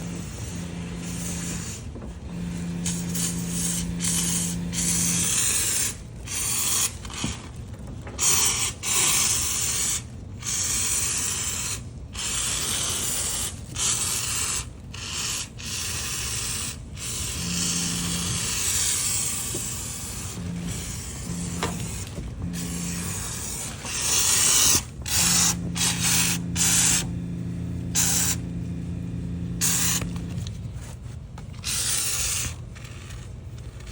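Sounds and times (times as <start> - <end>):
steady low hum: 0.0 - 6.5, 16.0 - 33.9.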